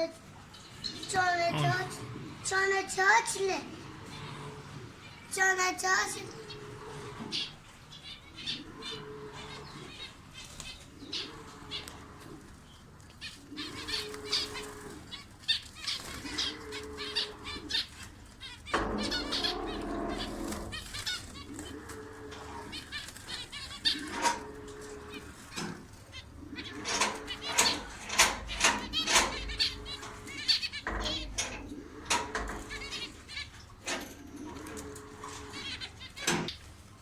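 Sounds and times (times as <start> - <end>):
birds chirping: 0.0 - 37.0
birds flapping wings: 13.2 - 33.1.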